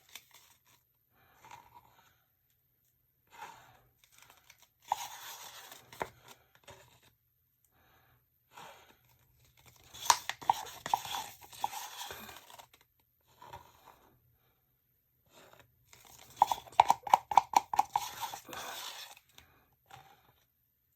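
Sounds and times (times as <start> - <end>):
paper or plastic tearing: 9.6 - 12.7.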